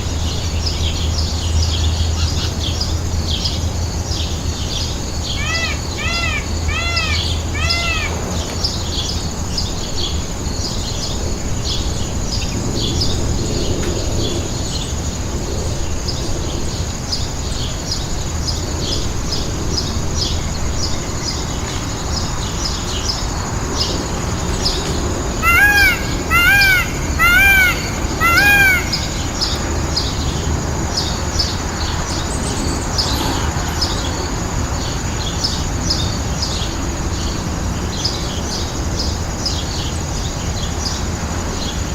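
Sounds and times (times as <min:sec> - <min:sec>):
small birds chirping: 0:00.0 - 0:15.0, 0:15.9 - 0:41.9
bird harsh calls: 0:04.8 - 0:09.2, 0:24.6 - 0:30.4.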